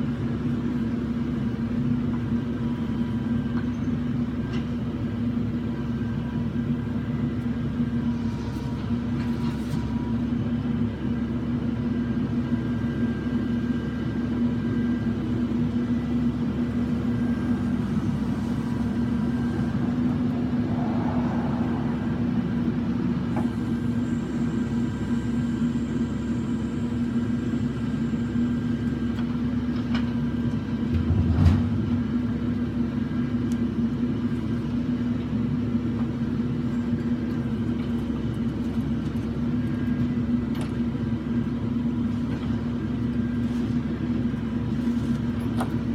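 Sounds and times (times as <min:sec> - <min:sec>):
truck engine humming: 0:00.0 - 0:45.9
loud thump: 0:31.0 - 0:32.1.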